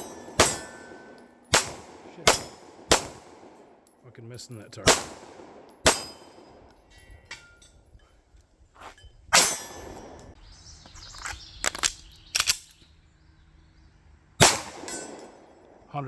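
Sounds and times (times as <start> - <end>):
loud pistol shot: 0.0 - 3.7, 4.8 - 6.6, 14.4 - 15.4.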